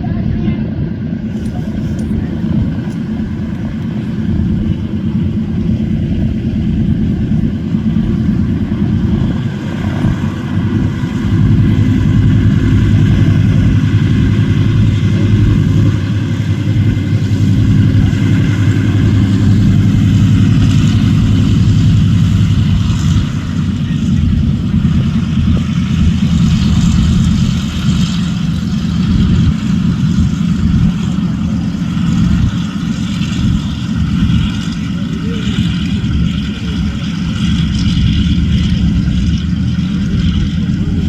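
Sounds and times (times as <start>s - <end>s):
aircraft radial engines running: 0.0s - 41.0s.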